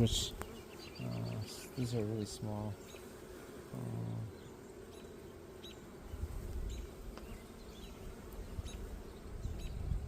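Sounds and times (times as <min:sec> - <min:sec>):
honeybees humming: 0:00.0 - 0:10.0
wind rumbling on microphone: 0:06.1 - 0:07.4, 0:08.4 - 0:10.0.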